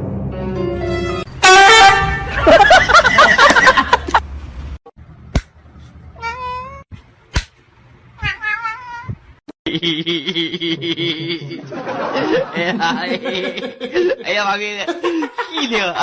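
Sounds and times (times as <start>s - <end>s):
cat meowing: 6.2s - 6.8s, 8.2s - 9.2s.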